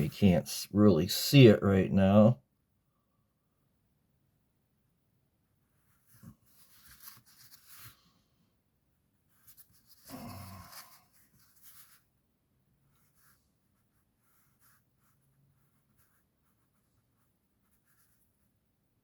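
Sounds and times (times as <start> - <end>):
paintbrush strokes on rock: 5.9 - 8.2.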